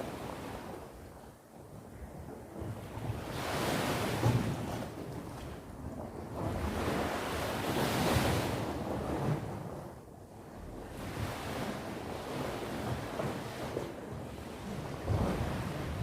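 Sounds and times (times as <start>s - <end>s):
wind on microphone: 0.0s - 16.0s
sea waves breaking on shore: 2.5s - 10.0s, 10.7s - 16.0s.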